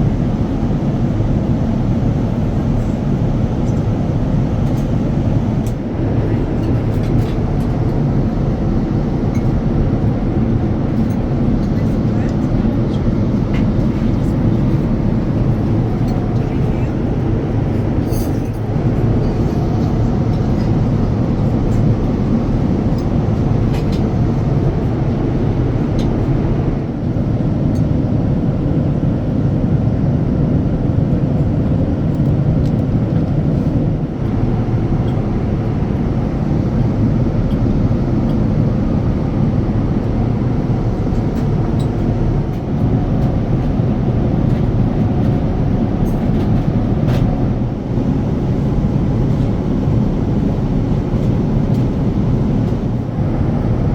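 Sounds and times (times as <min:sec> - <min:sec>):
jet engines rumbling in cabin: 0:00.0 - 0:53.9.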